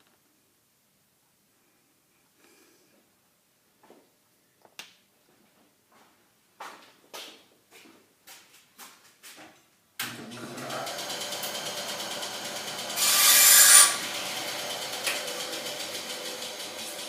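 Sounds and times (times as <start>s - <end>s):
small power tool running: 10.1s - 17.0s.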